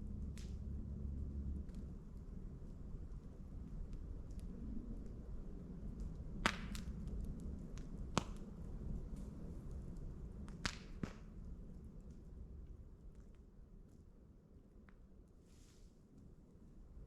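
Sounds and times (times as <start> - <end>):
campfire crackling: 0.0 - 16.9
sharp pops from burning wood: 6.0 - 11.4.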